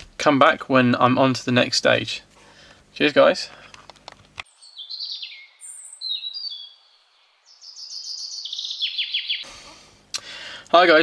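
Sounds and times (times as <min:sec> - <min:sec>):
bird whistling descending notes: 0:04.5 - 0:09.5.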